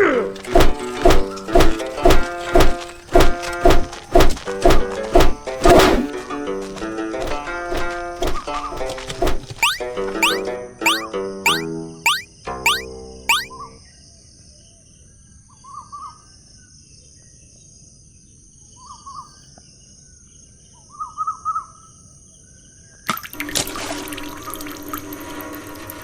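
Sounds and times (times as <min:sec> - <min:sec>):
bird chirping: 0:07.6 - 0:13.5.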